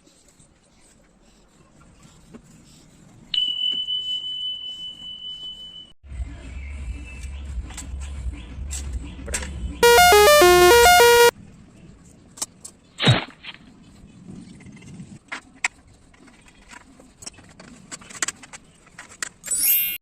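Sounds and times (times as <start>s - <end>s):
electronic jingle: 9.8s - 11.3s.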